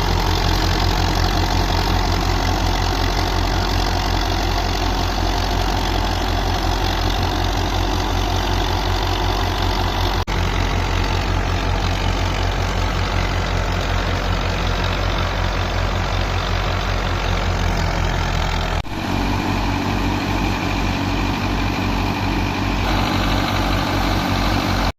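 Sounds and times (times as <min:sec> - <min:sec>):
tractor diesel engine running: 0:00.0 - 0:24.9
thresher machine din: 0:18.8 - 0:24.9.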